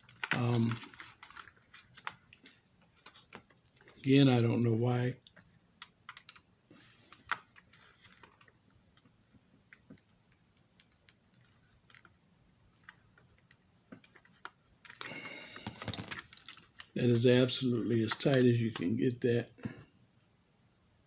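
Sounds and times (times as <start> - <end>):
plastic parts clicking together: 0.0 - 4.6, 5.2 - 6.5, 12.8 - 16.9.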